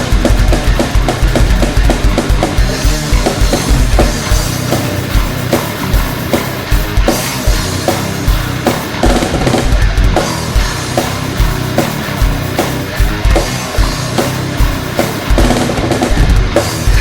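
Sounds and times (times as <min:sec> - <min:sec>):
heavy metal song: 0:00.0 - 0:17.0
kick drum hits: 0:00.2 - 0:04.5.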